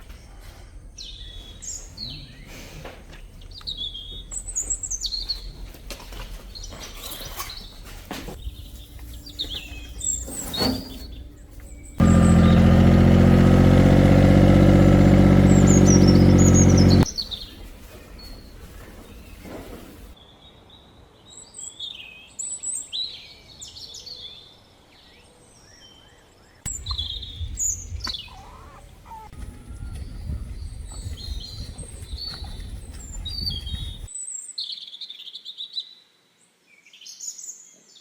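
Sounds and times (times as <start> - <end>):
birds chirping: 10.9 - 17.6, 26.7 - 34.1
loud buzzing drone: 12.0 - 17.0.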